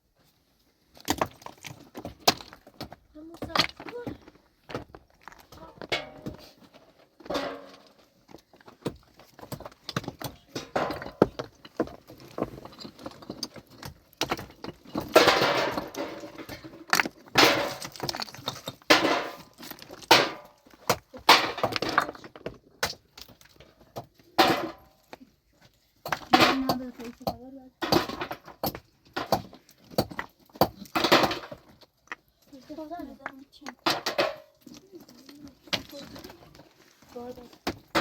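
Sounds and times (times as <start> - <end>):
rocks clattering together: 0.9 - 25.3, 26.0 - 38.0
stones scraping rattles: 7.2 - 23.6, 26.0 - 38.0.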